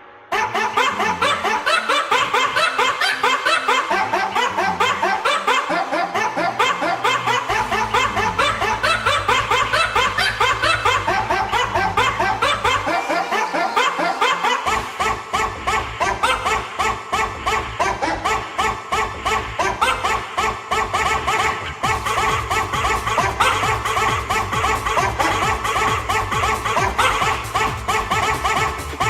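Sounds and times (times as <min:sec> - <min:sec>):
rhythmic laughter bursts: 0:00.3 - 0:29.0
deep bass: 0:06.2 - 0:13.0, 0:14.7 - 0:29.0.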